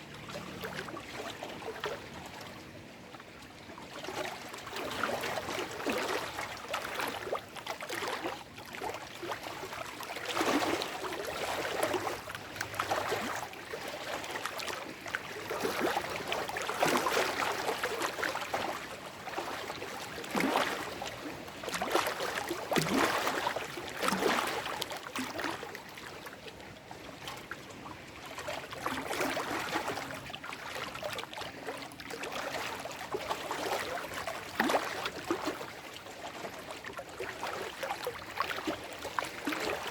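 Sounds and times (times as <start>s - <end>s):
waves lapping over rocks: 3.8s - 39.9s.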